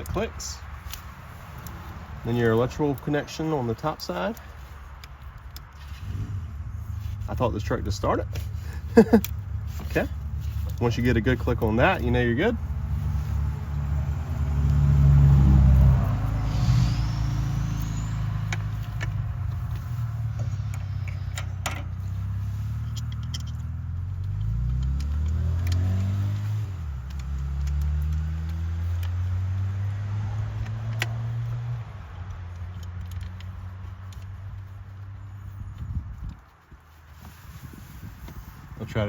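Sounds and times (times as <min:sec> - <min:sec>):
vehicle engine running: 0:01.2 - 0:39.0
sharp clicks and taps: 0:17.7 - 0:26.1.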